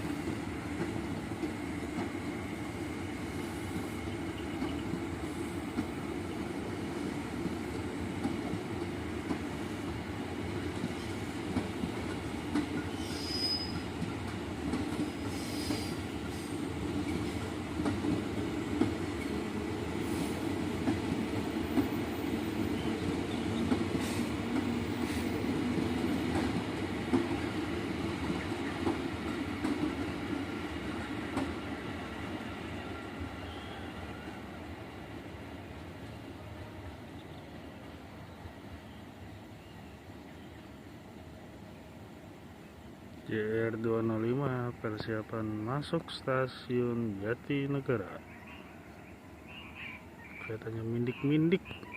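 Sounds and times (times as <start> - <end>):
train rumbling past: 0.0 - 51.9
high wheel squeals: 12.9 - 13.9.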